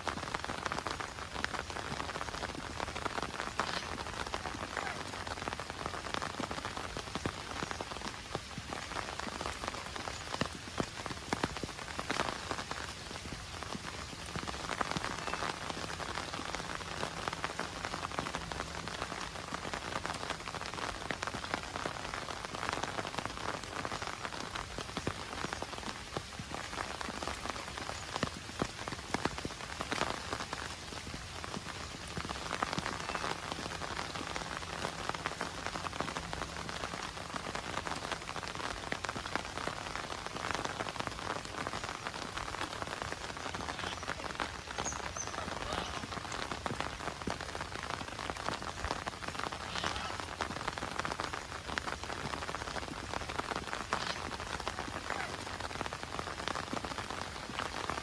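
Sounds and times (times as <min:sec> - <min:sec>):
heavy rain pattering: 0:00.0 - 0:58.0.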